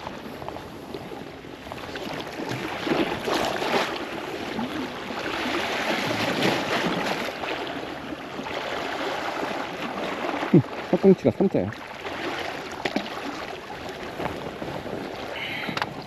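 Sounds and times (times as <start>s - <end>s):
sea water splashing on rocks: 8.4s - 16.0s.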